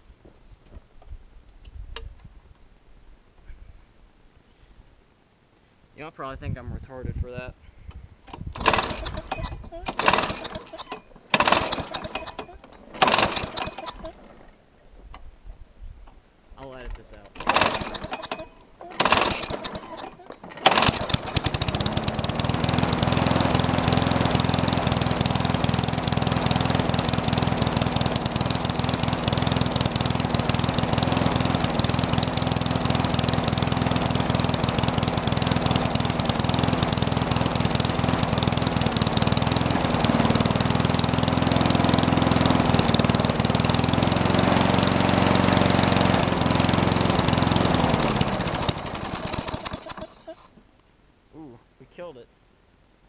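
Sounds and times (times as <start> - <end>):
lawn mower engine running: 8.3 - 14.6, 17.1 - 50.6.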